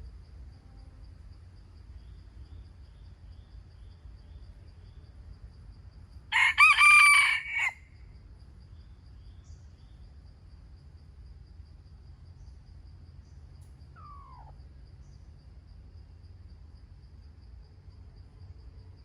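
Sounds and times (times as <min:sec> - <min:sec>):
rooster crowing: 0:06.3 - 0:08.0.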